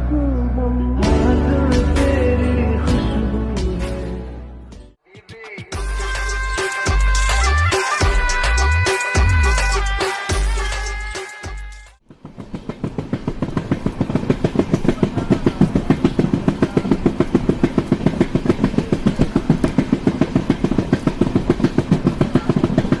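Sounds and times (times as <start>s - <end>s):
engine idling with rapid thumping: 12.0s - 23.0s.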